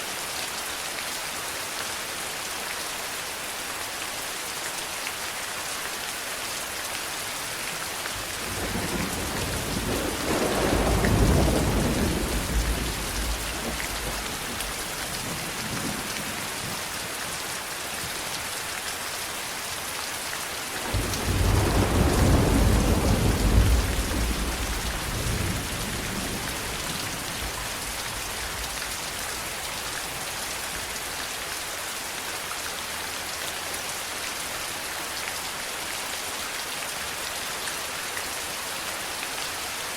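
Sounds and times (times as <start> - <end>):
heavy rain hissing: 7.0 - 31.2
thunder rolling: 8.5 - 16.8, 20.8 - 28.7.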